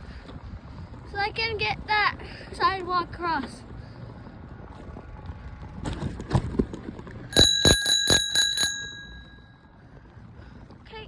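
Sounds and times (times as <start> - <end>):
bicycle bell ringing: 7.3 - 9.6.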